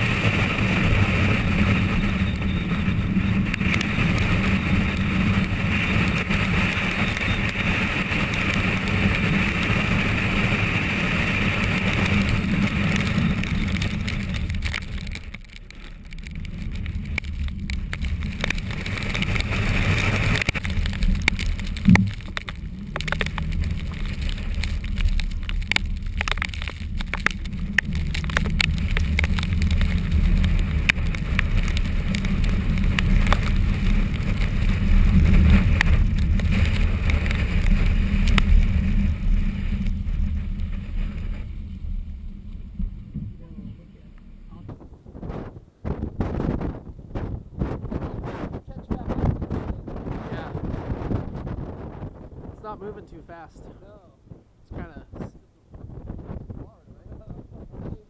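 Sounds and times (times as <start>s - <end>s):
sharp ticks: 0.0s - 39.1s
car road and engine noise: 0.0s - 58.0s.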